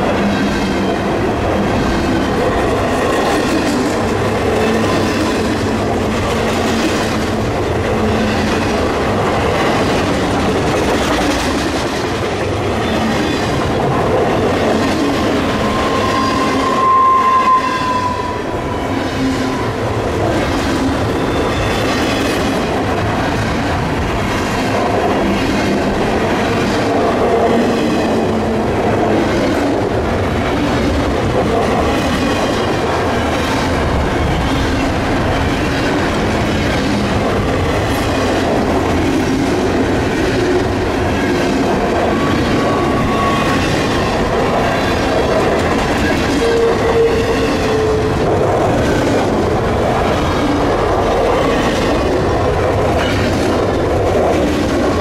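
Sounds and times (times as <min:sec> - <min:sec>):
freight train wheels rumbling: 0:00.0 - 0:55.0
wheel squeals: 0:15.5 - 0:18.4.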